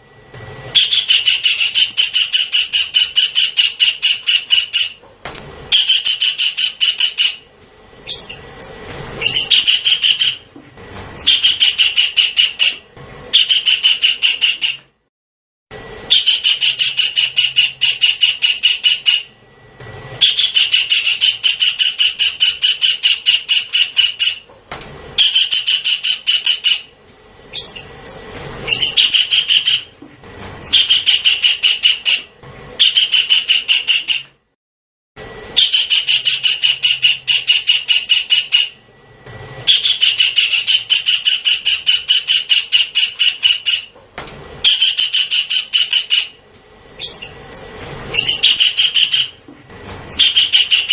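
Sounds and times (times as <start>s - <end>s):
kingfisher rattling call: 0.8s - 5.0s, 5.7s - 7.4s, 8.1s - 10.4s, 11.2s - 14.8s, 16.1s - 19.3s, 20.2s - 24.4s, 25.2s - 26.9s, 27.5s - 29.9s, 30.6s - 34.2s, 35.6s - 38.8s, 39.7s - 43.9s, 44.6s - 46.4s, 47.0s - 49.4s, 50.1s - 50.9s.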